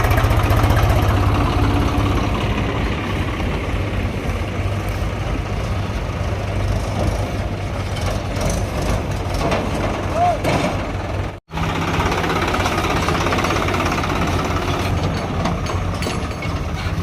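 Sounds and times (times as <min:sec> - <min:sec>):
heavy diesel engine rumbling: 0:00.0 - 0:17.0.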